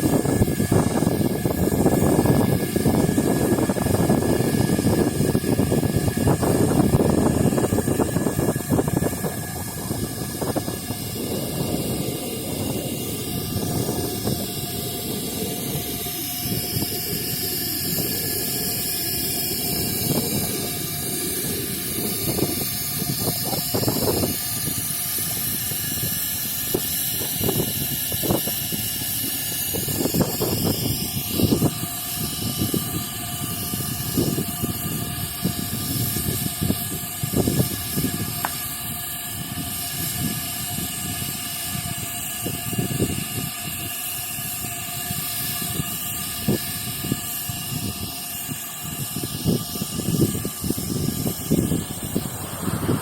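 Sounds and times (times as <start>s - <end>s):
heavy machinery rumbling: 49.4s - 53.0s.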